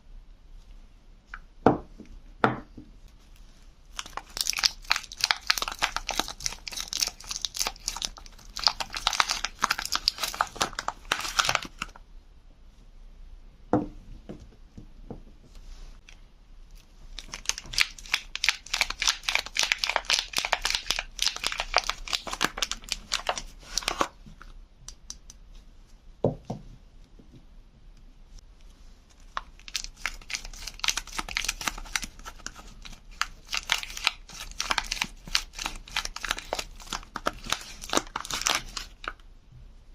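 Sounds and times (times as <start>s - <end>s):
wrapping being torn and crinkled: 3.9s - 12.0s, 17.2s - 24.2s, 29.1s - 39.2s.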